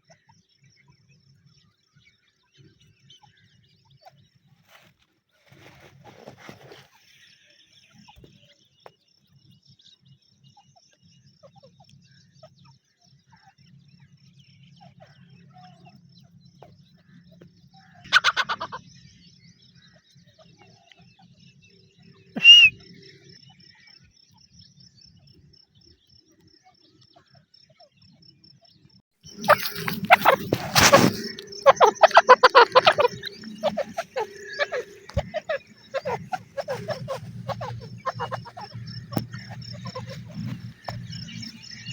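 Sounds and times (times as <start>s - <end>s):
francolin calling: 18.1s - 18.8s, 22.4s - 22.7s, 29.3s - 41.9s
loud bird calling: 18.1s - 18.8s, 22.4s - 22.7s, 29.3s - 41.9s.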